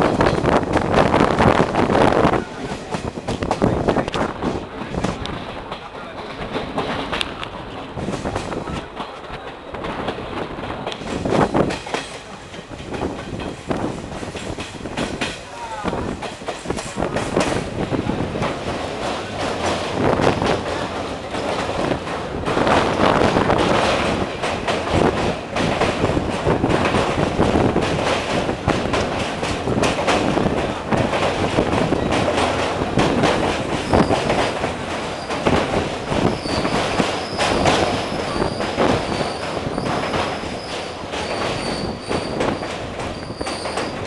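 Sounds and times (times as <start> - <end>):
clacks over rail joints: 0.0 - 44.0
train wheels rumbling on rails: 0.0 - 44.0
high-pitched wheel squeal: 39.2 - 44.0.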